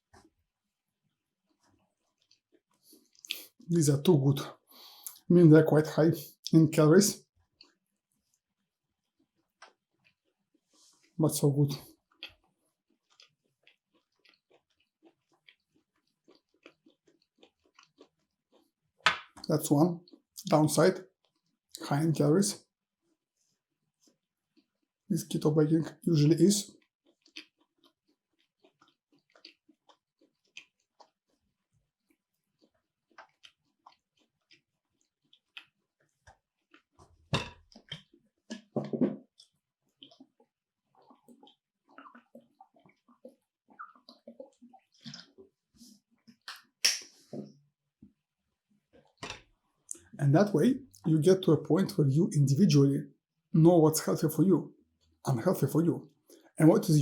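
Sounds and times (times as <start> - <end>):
mouth chewing sounds: 1.5 - 3.7, 4.5 - 5.3, 11.8 - 20.6, 26.6 - 47.2, 48.9 - 51.4.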